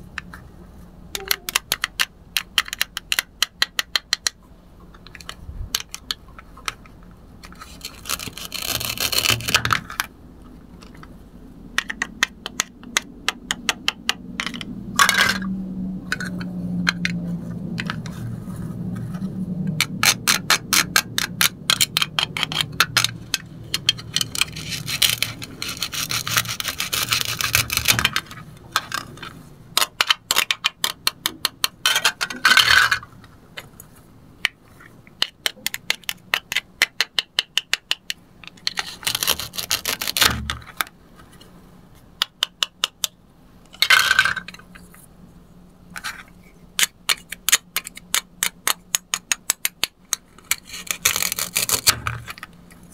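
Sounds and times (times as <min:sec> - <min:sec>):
velcro ripping: 0:07.6 - 0:09.6, 0:38.9 - 0:40.3
plastic pieces clattering: 0:14.4 - 0:15.5.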